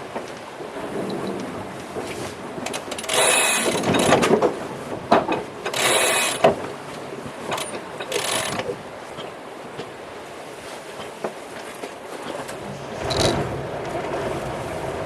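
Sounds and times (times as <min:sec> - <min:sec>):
ratcheting mechanical clicking: 0:02.7 - 0:04.3, 0:05.7 - 0:06.6, 0:07.5 - 0:08.8.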